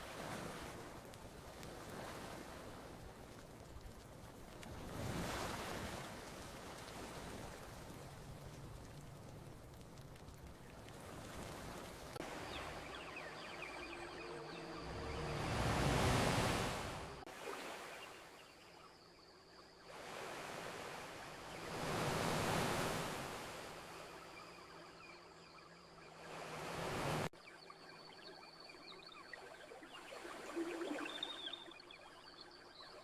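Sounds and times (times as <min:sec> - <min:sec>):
ocean waves washing onto beach: 0:00.0 - 0:18.7, 0:19.9 - 0:27.4.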